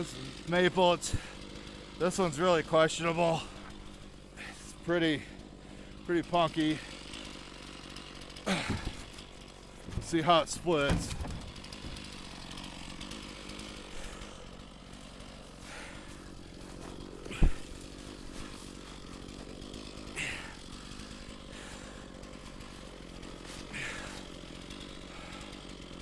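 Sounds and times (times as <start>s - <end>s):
chainsaw idling: 0.0s - 26.0s
heavy thump: 10.8s - 12.0s.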